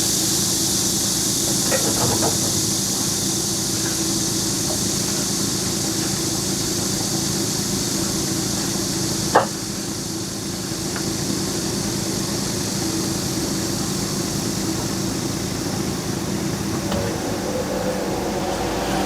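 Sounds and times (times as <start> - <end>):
high hiss: 16.6 - 19.0
heavy equipment engine running: 16.7 - 19.0.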